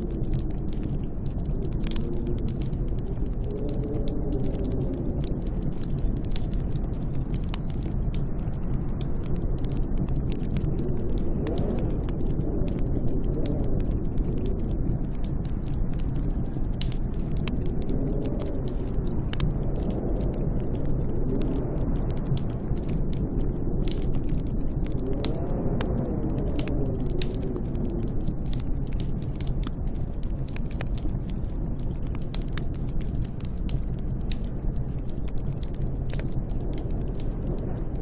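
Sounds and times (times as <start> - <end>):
small sharp crackles: 0.0 - 38.0
snowstorm wind rumbling: 0.0 - 38.0
wind moaning: 0.0 - 38.0.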